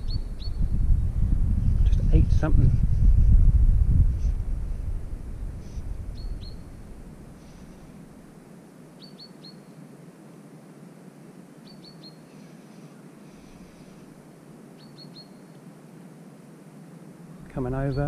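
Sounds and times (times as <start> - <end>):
bird chirping: 0.0 - 0.8, 6.1 - 6.8, 9.0 - 9.9, 11.6 - 14.0, 14.8 - 15.6
outdoor hiss: 2.1 - 18.0.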